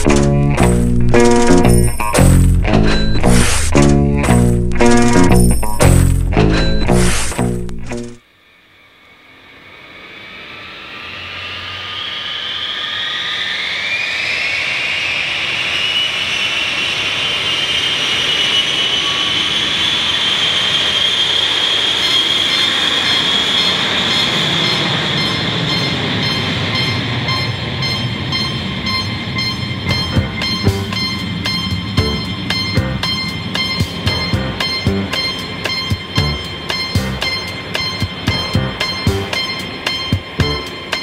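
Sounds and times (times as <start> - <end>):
sharp clicks: 0.0 - 8.2
train traction motors whining: 0.0 - 8.2, 17.4 - 41.0.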